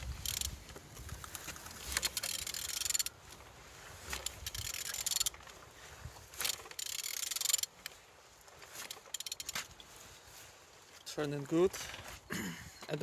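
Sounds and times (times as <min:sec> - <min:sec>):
ratchet wrench clicking: 0:00.1 - 0:00.6, 0:01.8 - 0:03.1, 0:04.1 - 0:05.3, 0:06.4 - 0:07.9, 0:08.9 - 0:09.6.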